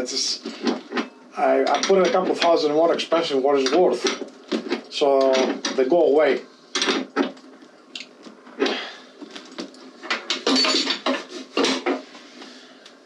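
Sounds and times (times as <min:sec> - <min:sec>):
metal hardware clinking: 0:10.3 - 0:11.2.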